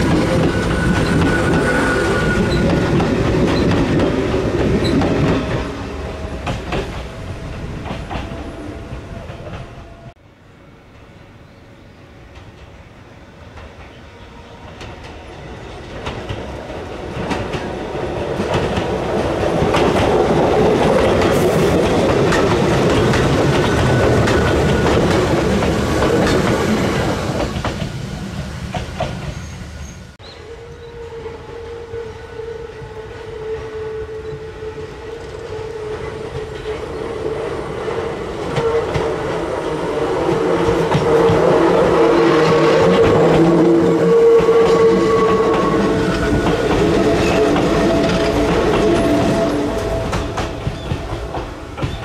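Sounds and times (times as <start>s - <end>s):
railcar running rumble: 0.0s - 52.0s
wheels clacking over rail joints: 15.8s - 28.0s.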